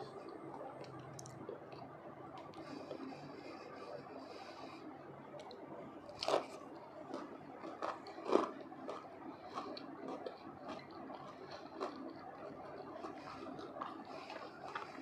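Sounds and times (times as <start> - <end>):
chewing with soft crunches: 0.0 - 15.0
crunching bites of crispy food: 5.4 - 15.0.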